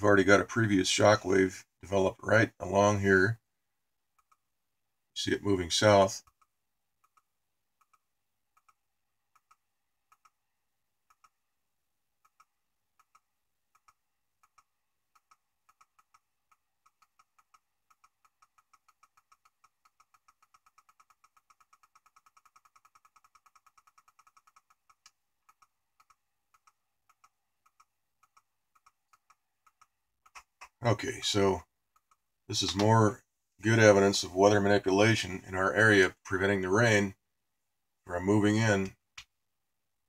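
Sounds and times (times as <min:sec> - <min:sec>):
computer mouse clicks: 0:04.2 - 0:04.4, 0:06.2 - 0:10.4, 0:11.0 - 0:11.4, 0:12.2 - 0:30.8, 0:31.9 - 0:32.9.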